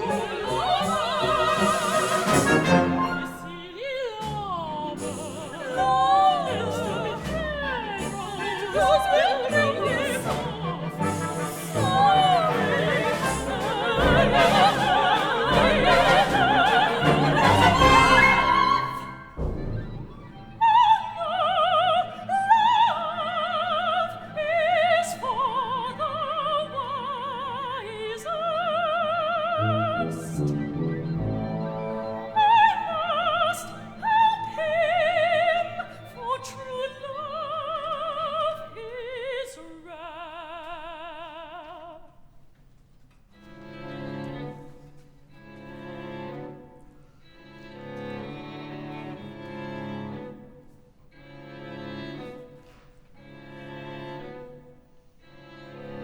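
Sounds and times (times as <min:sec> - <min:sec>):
instrumental accompaniment: 0:00.0 - 0:21.4, 0:29.6 - 0:33.2
operatic singing: 0:00.0 - 0:42.2.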